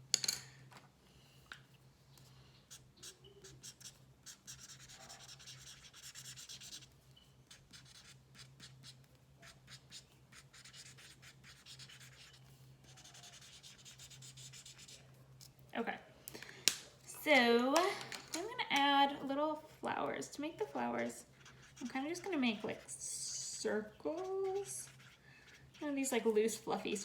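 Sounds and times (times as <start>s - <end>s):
pencil scribbling on paper: 2.7s - 6.9s, 7.5s - 15.0s, 20.6s - 26.0s.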